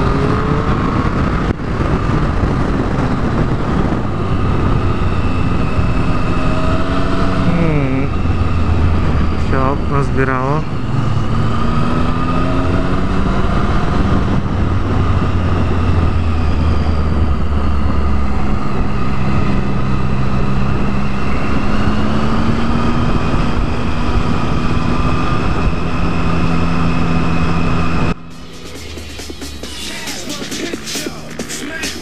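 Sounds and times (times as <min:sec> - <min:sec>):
motorcycle engine running: 0:00.0 - 0:32.0
wind and road noise: 0:00.0 - 0:32.0
electronic music: 0:28.2 - 0:32.0.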